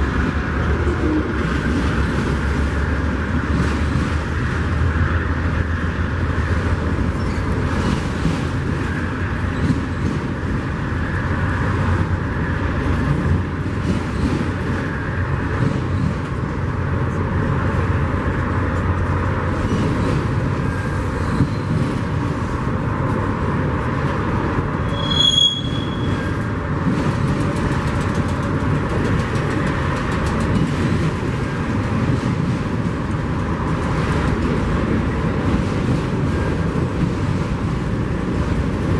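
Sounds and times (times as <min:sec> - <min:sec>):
train rumbling on rails: 0:00.0 - 0:38.9
high-pitched train squeal: 0:07.1 - 0:08.0, 0:19.6 - 0:22.0, 0:24.8 - 0:26.6.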